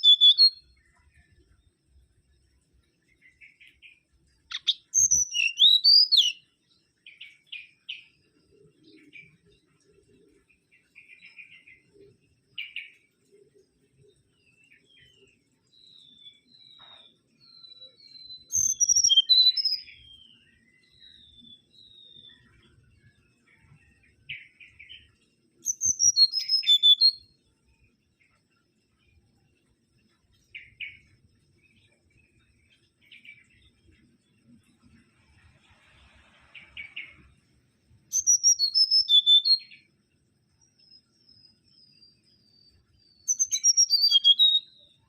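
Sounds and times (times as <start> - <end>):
bird whistling descending notes: 0.0 - 0.6, 4.5 - 6.4, 18.6 - 19.8, 25.7 - 27.2, 38.1 - 39.7, 43.3 - 44.7
raspy bird chirps: 0.0 - 0.6, 4.5 - 6.4, 18.5 - 19.9, 25.6 - 27.2, 38.1 - 39.8, 43.3 - 44.7.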